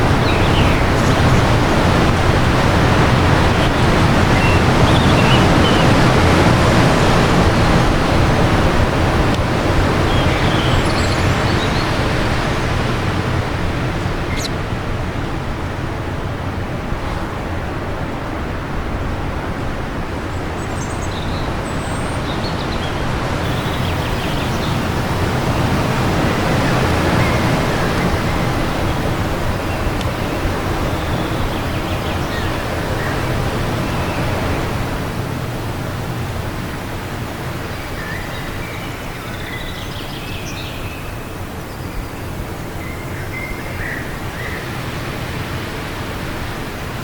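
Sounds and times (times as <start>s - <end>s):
birds chirping: 0.0s - 2.0s, 22.6s - 41.1s
wind gusting: 23.4s - 38.6s.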